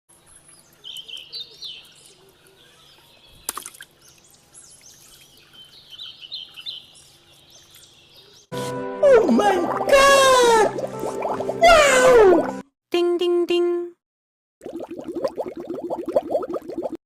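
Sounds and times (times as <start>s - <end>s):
small birds chirping: 0.1s - 8.5s.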